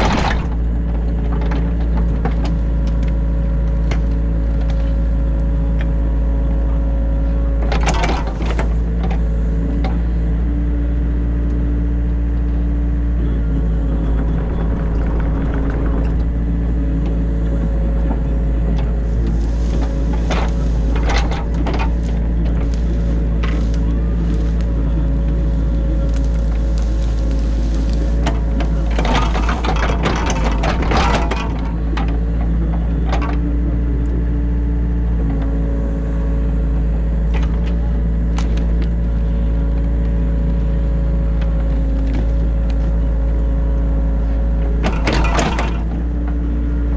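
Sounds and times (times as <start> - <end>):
excavator diesel engine running: 0.0 - 46.9
bucket crunching and scraping: 13.9 - 33.3.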